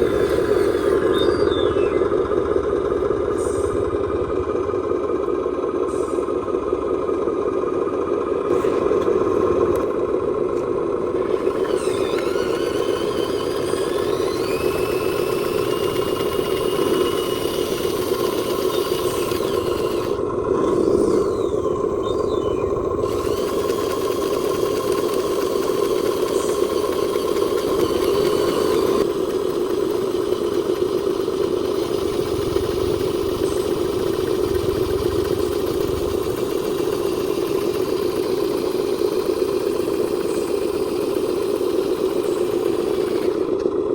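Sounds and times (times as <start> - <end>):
toy truck motor hum: 0.0 - 43.9
rising whine: 11.1 - 29.7, 30.3 - 40.6.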